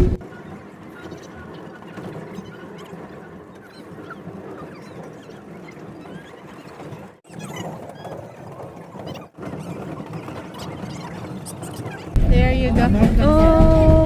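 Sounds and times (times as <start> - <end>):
faint short squeaks: 3.6 - 12.2
railcar rumbling along track: 12.1 - 14.0.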